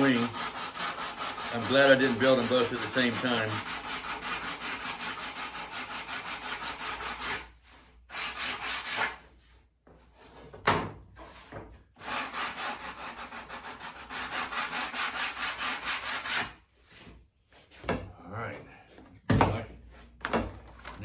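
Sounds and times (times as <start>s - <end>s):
hand saw cutting wood: 0.0s - 9.3s, 12.0s - 16.6s.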